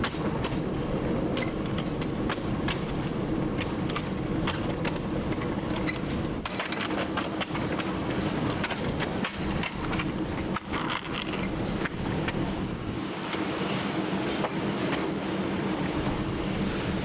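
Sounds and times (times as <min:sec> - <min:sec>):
wheels clicking on track: 0:00.0 - 0:15.2
diesel locomotive engine droning: 0:00.0 - 0:17.0.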